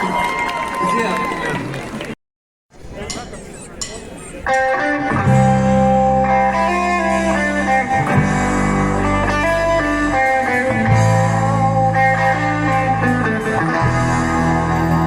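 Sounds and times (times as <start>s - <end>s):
electric guitar: 4.4s - 15.0s
sustained bass notes: 4.5s - 15.0s.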